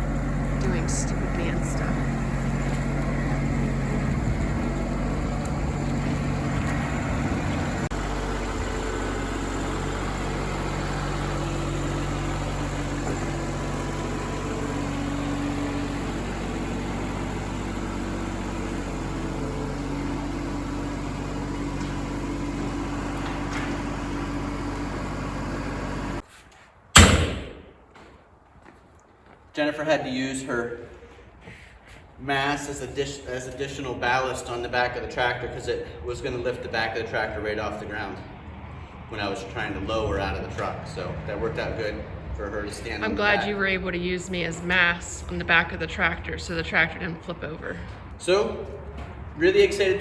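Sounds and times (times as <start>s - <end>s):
tractor diesel engine running: 0.0s - 26.2s, 33.8s - 50.0s
loud thump: 26.9s - 27.8s.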